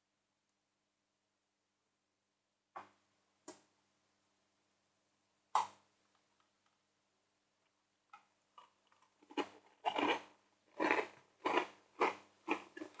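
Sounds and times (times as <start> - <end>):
cookies being chewed: 8.2 - 13.0.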